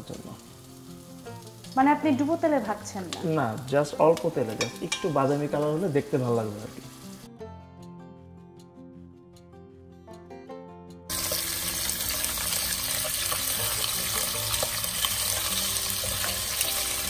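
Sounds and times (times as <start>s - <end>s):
food sizzling in hot oil: 0.0s - 7.3s, 11.1s - 17.0s
quiet background music: 0.0s - 17.0s.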